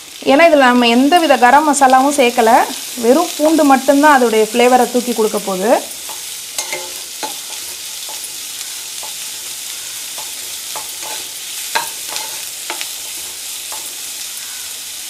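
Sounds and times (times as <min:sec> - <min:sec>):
onions sizzling in hot oil: 0:00.0 - 0:15.0
spatula scraping a pan: 0:05.9 - 0:14.6.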